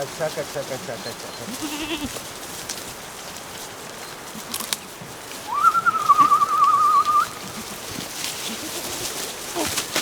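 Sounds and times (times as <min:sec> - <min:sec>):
high warbling whistle: 0:05.5 - 0:07.4.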